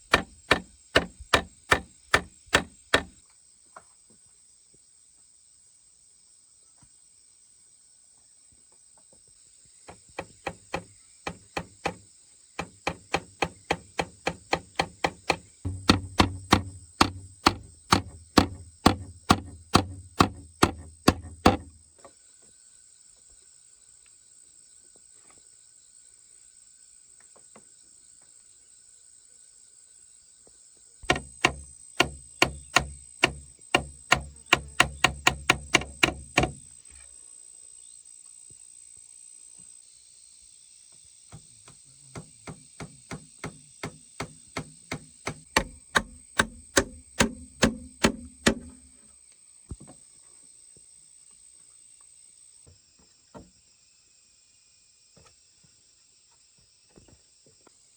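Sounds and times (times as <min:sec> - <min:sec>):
hand tool striking wood: 0:00.0 - 0:03.2, 0:09.9 - 0:12.0, 0:12.6 - 0:21.8, 0:31.0 - 0:36.7, 0:42.2 - 0:48.9
insects droning: 0:00.0 - 0:03.2, 0:09.3 - 0:24.8, 0:25.6 - 0:37.1, 0:37.8 - 0:57.9.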